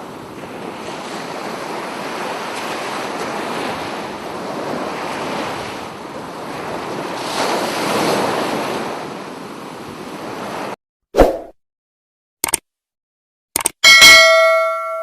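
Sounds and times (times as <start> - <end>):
sea surf washing ashore: 0.0 - 10.8.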